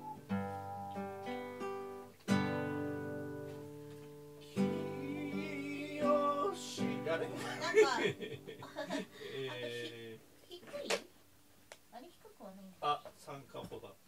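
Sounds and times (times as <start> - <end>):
acoustic guitar ringing chords: 0.0 - 9.4.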